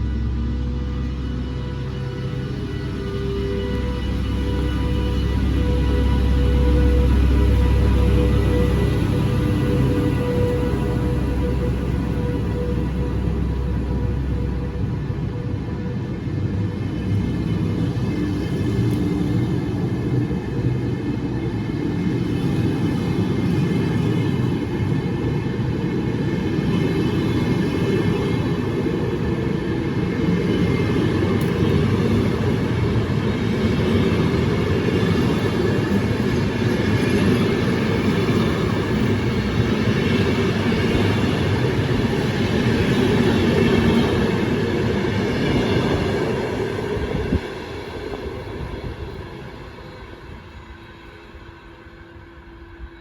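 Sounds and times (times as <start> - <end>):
high whine: 0.0 - 22.0
train wheels rumbling on rail: 0.0 - 53.0.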